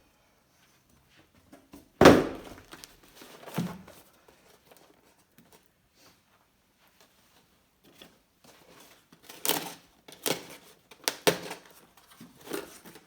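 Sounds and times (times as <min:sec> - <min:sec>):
sharp knock: 0:02.0 - 0:02.6.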